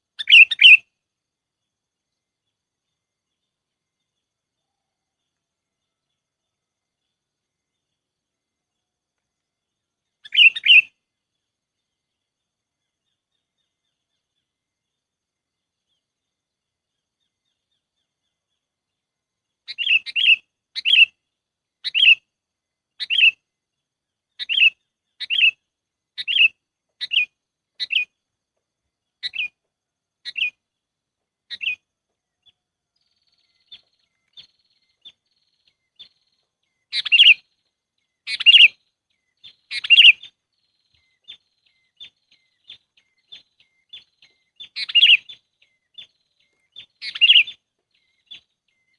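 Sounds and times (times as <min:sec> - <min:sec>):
bird chirpy calls: 0:00.2 - 0:00.9, 0:10.2 - 0:11.0, 0:19.6 - 0:21.2, 0:21.8 - 0:22.2, 0:23.0 - 0:23.4, 0:24.3 - 0:25.6, 0:26.2 - 0:28.2, 0:29.2 - 0:29.6, 0:30.2 - 0:30.6, 0:31.5 - 0:48.9
faint high ticks: 0:09.1 - 0:09.6.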